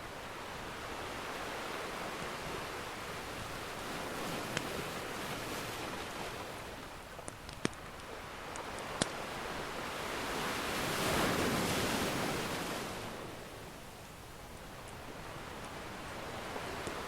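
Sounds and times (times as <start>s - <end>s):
ocean surf wave: 0.0s - 17.0s
wood fire crackling pops: 7.3s - 9.2s.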